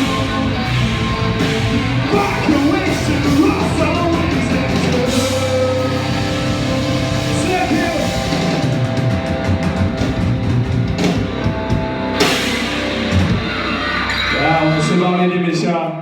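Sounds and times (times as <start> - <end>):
electric guitar: 0.0 - 15.3
live rock band playing: 0.0 - 15.4.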